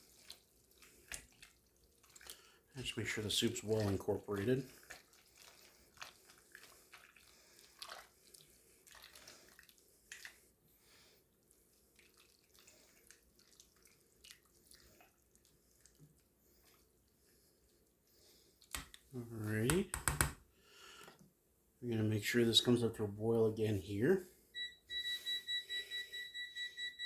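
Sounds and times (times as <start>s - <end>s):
spoon stirring noodles in pot: 0.0s - 2.6s, 3.5s - 10.4s.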